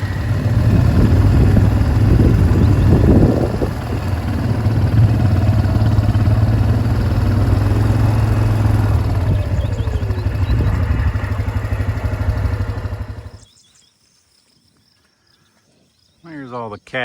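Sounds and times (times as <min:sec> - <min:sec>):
vehicle engine running: 0:00.0 - 0:13.5.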